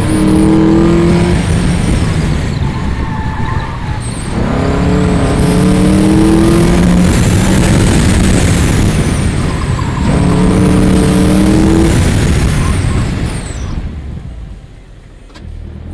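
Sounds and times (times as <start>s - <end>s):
tyre and wind noise: 0.0s - 14.5s
car engine accelerating: 0.0s - 15.9s.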